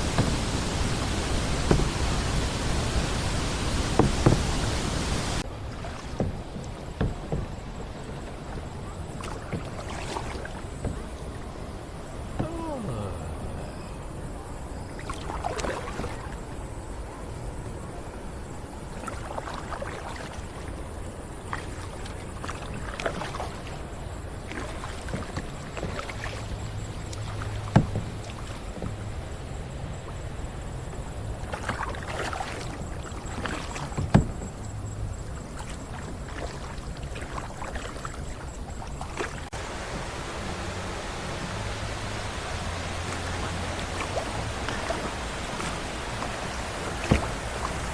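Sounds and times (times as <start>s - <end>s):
paddle strokes splashing in water: 0.0s - 13.7s, 14.8s - 47.9s
sharp knocks: 1.6s - 2.2s, 3.9s - 4.6s.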